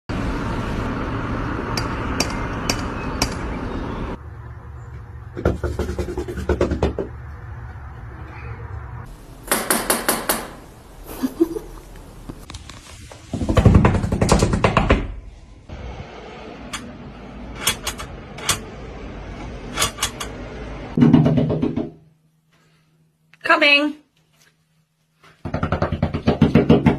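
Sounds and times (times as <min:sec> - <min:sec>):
room noise: 0:05.4 - 0:26.0.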